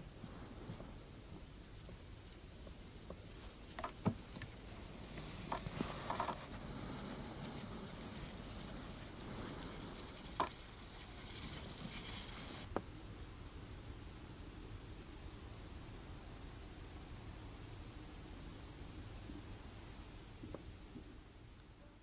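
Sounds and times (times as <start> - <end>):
faint high jingling: 0.5 - 12.7.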